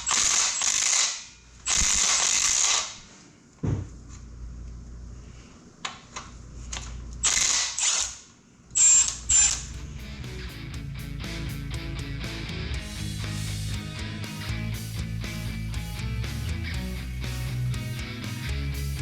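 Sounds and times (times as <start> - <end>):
short ratchet clicks: 0.0 - 3.0, 7.2 - 8.2, 8.8 - 9.7
ratchet wrench loosening fasteners: 7.2 - 8.1.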